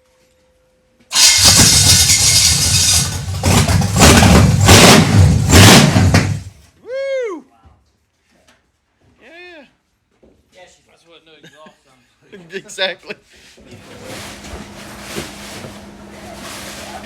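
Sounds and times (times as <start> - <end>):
engine running loud without exhaust: 1.1 - 6.5.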